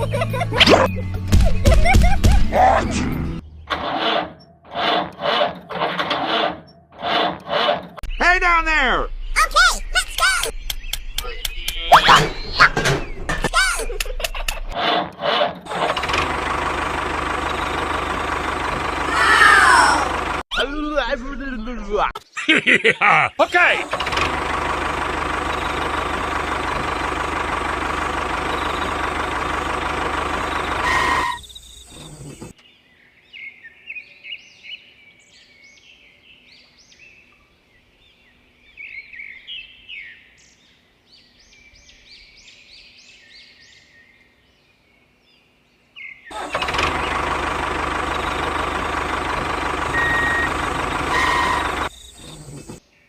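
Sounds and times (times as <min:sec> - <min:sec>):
birds chirping: 0:08.0 - 0:14.8, 0:15.7 - 0:20.7, 0:23.2 - 0:53.0
model tractor engine running: 0:15.7 - 0:20.4, 0:23.8 - 0:32.5, 0:46.3 - 0:52.8.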